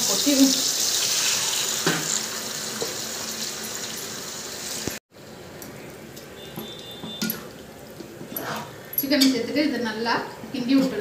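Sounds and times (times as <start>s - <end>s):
chicken sizzling in hot oil: 0.0s - 5.0s.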